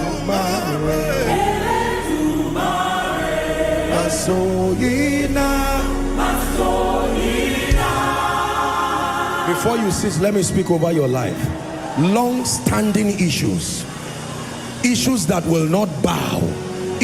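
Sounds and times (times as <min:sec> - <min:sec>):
steady bass accompaniment: 0:00.0 - 0:12.0
gospel choir and congregation singing: 0:00.0 - 0:15.2.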